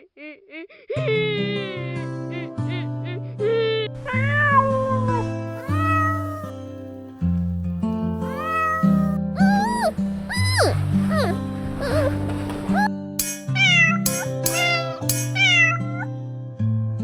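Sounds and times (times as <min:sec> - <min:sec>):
cat meowing: 0:04.1 - 0:06.7, 0:08.2 - 0:12.9, 0:13.6 - 0:16.1.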